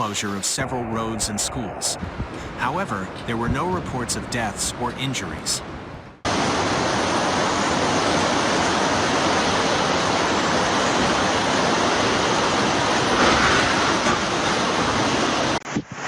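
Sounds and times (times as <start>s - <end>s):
floodwater rushing: 6.3s - 15.6s.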